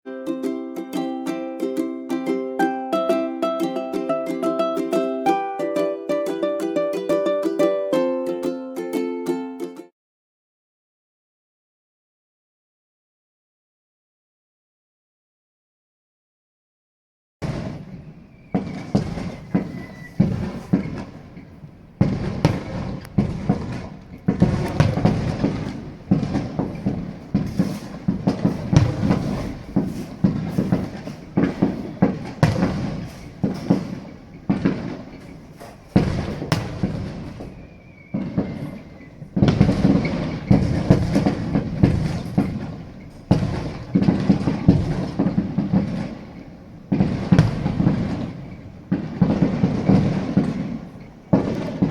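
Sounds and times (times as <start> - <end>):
fireworks bursting and crackling: 17.4 - 51.9
faint falling whistle: 17.8 - 21.0, 36.6 - 39.3.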